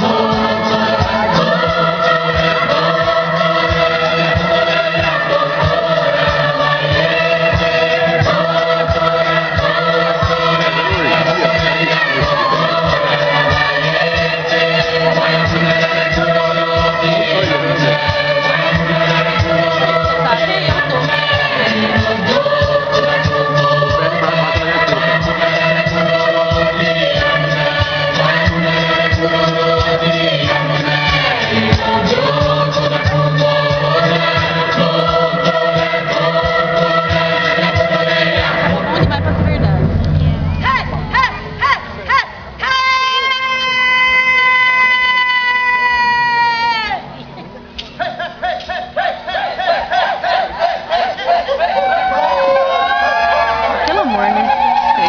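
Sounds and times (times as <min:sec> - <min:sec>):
steady low beat: 0:00.0 - 0:29.9, 0:36.5 - 0:42.6
choir singing long notes: 0:00.0 - 0:45.2
low steady drone: 0:34.6 - 0:42.9
low drum beat: 0:37.7 - 0:42.6.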